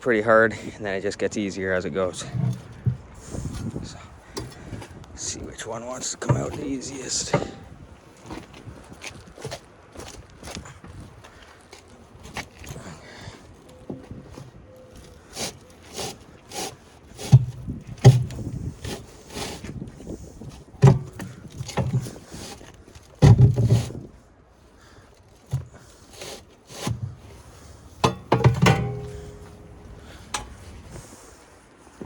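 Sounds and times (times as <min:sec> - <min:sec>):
knocks and scraping in steel case: 0:02.0 - 0:24.2, 0:25.4 - 0:31.2
heavy thuds: 0:02.2 - 0:05.0, 0:05.9 - 0:08.8, 0:28.0 - 0:31.1.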